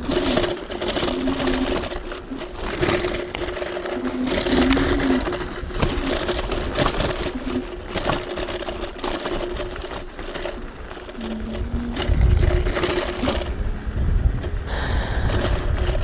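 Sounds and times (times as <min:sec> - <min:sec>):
scooter rattling on bumps: 0:00.0 - 0:16.0
electric motor whine: 0:11.0 - 0:16.0
lower motor tone: 0:11.1 - 0:16.0.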